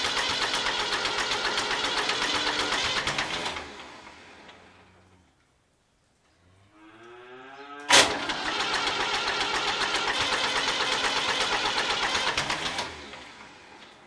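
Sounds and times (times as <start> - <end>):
tractor starter motor cranking: 0.0 - 4.8, 7.8 - 14.0.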